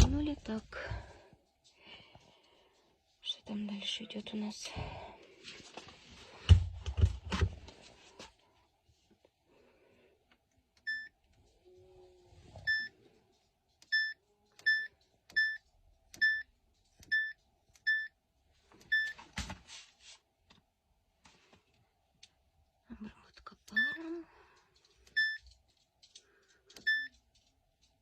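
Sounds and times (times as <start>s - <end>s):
washer control panel beeping: 12.6s - 12.9s, 13.8s - 15.6s, 16.2s - 16.4s, 17.0s - 18.1s, 18.8s - 19.2s, 25.1s - 25.4s, 26.8s - 27.1s.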